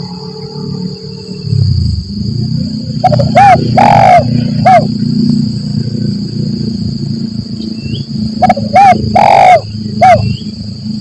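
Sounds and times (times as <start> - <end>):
high-pitched insect drone: 0.0 - 11.0
dove cooing: 3.0 - 5.0, 8.4 - 10.4.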